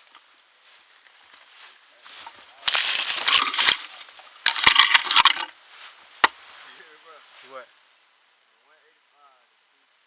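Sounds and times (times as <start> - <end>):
brush and wood crunching: 0.0 - 7.6.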